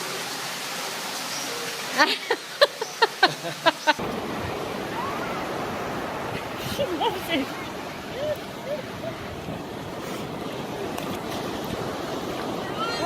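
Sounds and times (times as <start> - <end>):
steady outdoor hiss: 0.0 - 13.0
child giggling and squealing: 8.1 - 9.2.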